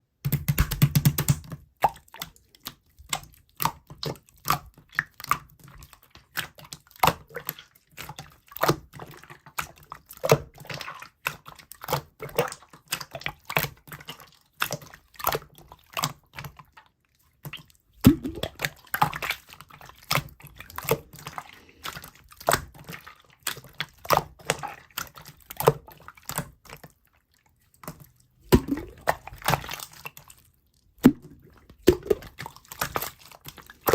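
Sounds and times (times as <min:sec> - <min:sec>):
slime squeezed with wet clicks: 0:17.4 - 0:26.7, 0:27.8 - 0:30.4.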